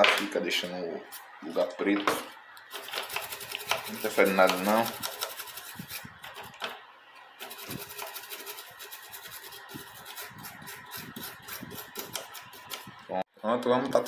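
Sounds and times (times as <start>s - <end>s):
scrubbing a circuit board: 2.7s - 6.6s, 7.4s - 13.1s.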